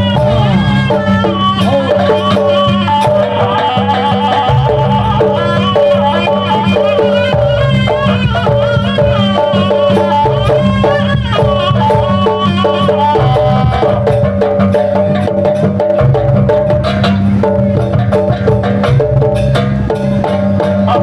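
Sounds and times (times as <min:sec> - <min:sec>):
low drone: 0:00.0 - 0:11.2
wavering melodic line: 0:00.0 - 0:16.4
driving drums and percussion: 0:00.0 - 0:21.0.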